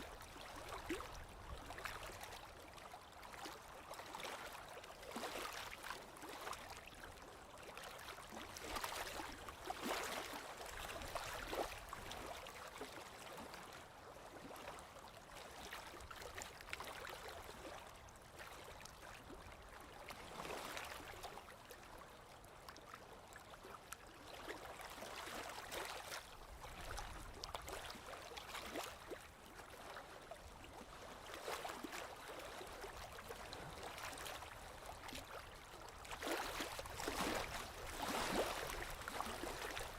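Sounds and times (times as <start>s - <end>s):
small waves lapping on shore: 0.0s - 39.9s.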